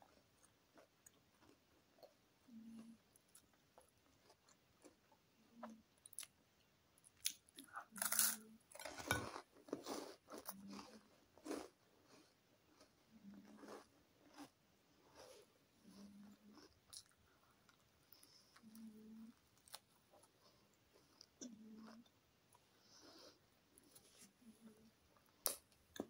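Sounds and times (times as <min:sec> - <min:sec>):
crunchy chewing: 0:00.1 - 0:06.3, 0:07.0 - 0:22.6.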